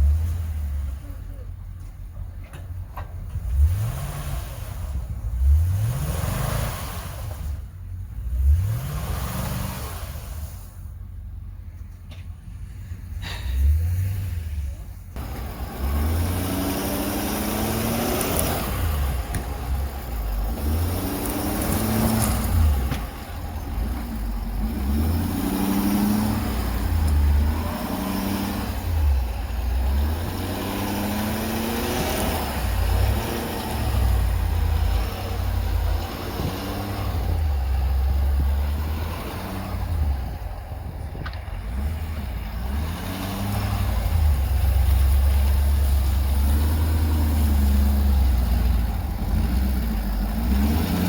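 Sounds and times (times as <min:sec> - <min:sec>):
road noise: 0:00.0 - 0:51.0
vehicle engine accelerating: 0:12.6 - 0:51.0.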